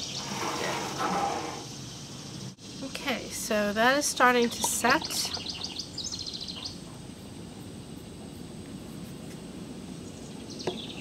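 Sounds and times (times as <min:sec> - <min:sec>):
low outdoor background hum: 0:00.0 - 0:11.0.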